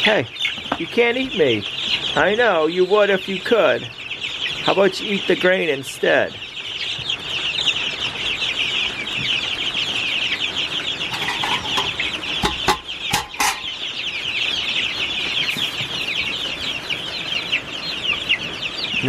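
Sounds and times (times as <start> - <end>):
chicks peeping: 0.0 - 19.0
sharp knocks: 11.1 - 13.7.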